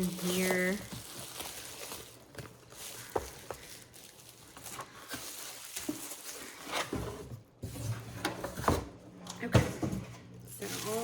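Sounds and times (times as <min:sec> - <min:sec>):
packaging rustling: 0:00.0 - 0:07.8, 0:10.5 - 0:11.0.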